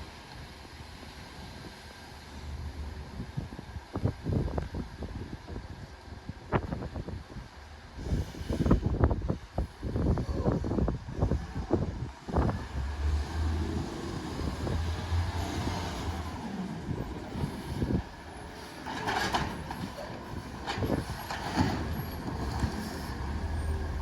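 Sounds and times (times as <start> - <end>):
short hiss: 8.0 - 8.9
garbage truck engine humming: 11.4 - 24.0
knocks and clanks: 18.8 - 22.9.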